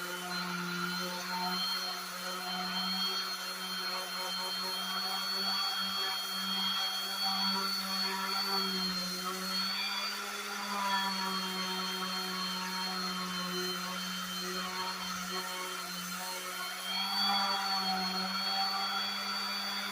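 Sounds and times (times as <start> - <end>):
power sander on wood: 0.0 - 19.9.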